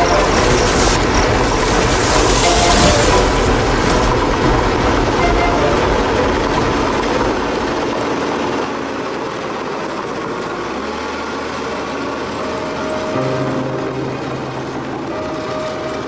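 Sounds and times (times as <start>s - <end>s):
steady tones: 0.0s - 8.9s
heavy mechanical rumble: 0.0s - 16.0s.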